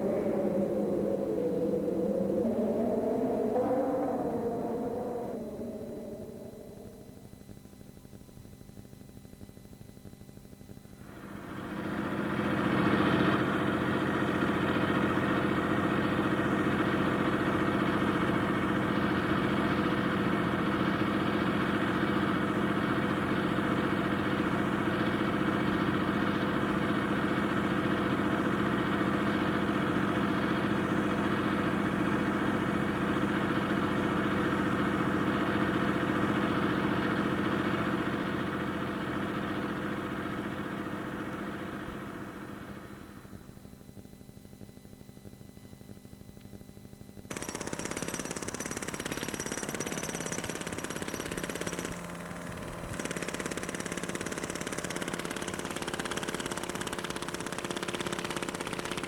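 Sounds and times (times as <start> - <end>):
engine running: 0.0 - 7.4, 11.0 - 43.5, 47.3 - 59.0.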